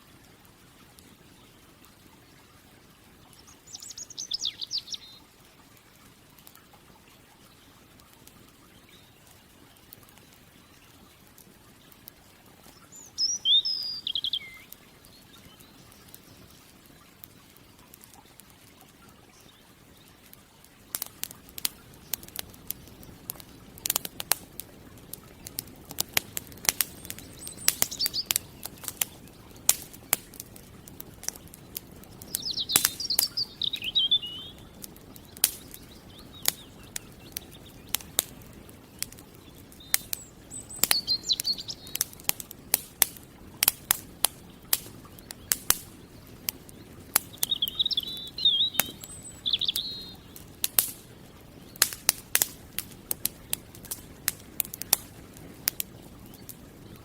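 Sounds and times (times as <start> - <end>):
campfire crackling and popping: 0.0 - 57.0
bird chirping: 3.4 - 5.3, 12.7 - 16.6, 26.7 - 30.2, 31.4 - 42.2, 44.4 - 50.4.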